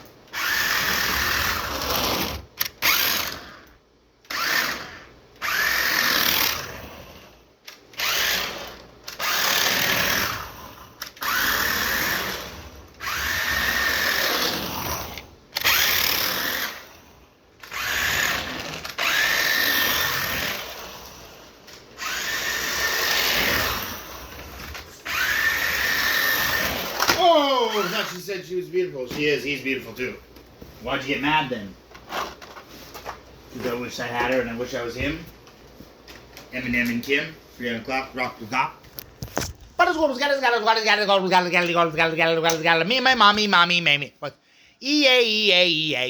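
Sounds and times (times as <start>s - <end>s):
toy car electric motor whirring: 0.3s - 17.0s, 17.6s - 28.2s.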